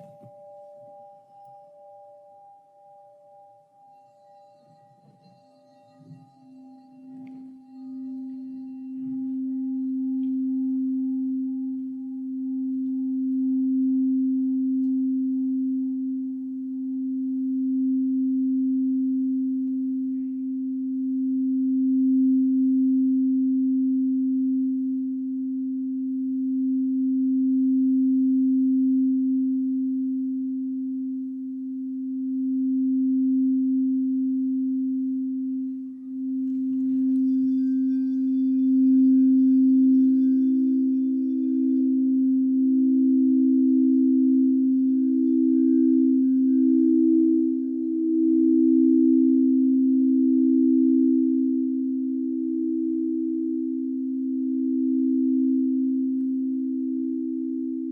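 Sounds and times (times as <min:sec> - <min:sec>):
singing bowl tone: 0:00.0 - 0:57.9.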